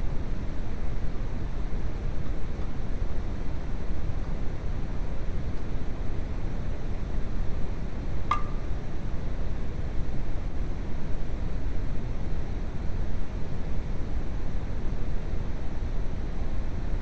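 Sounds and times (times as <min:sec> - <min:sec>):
light metallic clink: 0:08.3 - 0:08.7.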